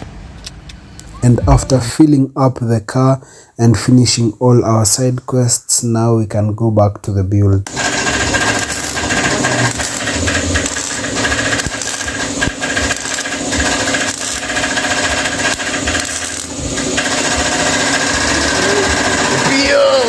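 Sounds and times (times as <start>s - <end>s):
welder crackling and buzzing: 7.7s - 20.0s.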